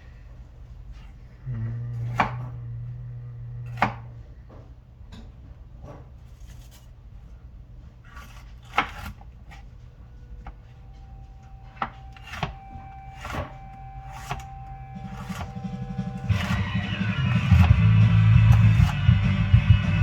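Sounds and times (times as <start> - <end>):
low steady hum: 0.0 - 20.0
knife on chopping board: 3.7 - 4.1, 6.2 - 7.0, 8.0 - 9.8, 11.7 - 14.5, 15.1 - 16.6, 18.5 - 19.1
guitar music: 12.4 - 20.0.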